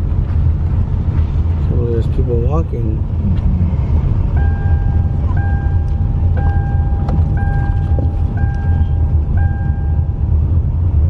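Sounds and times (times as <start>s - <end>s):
low rumble of car cabin: 0.0s - 11.0s
car warning chime beeping: 4.4s - 10.2s.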